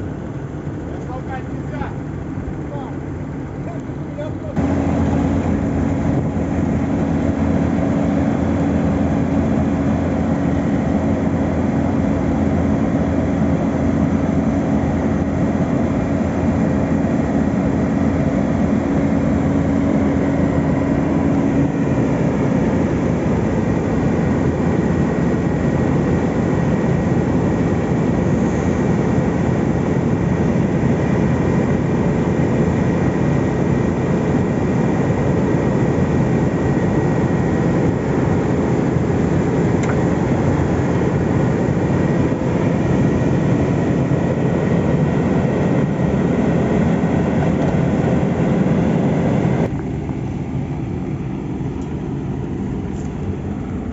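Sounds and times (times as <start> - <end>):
droning tone: 0.0 - 32.1
diesel engine rumble: 0.0 - 53.9.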